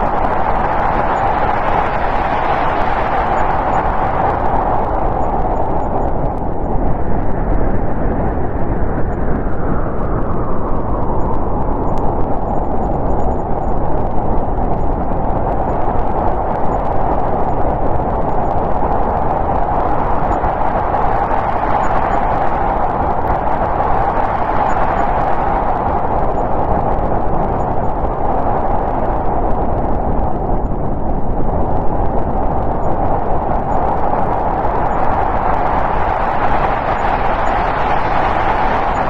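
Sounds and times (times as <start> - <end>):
snowstorm wind blowing: 0.0 - 39.0.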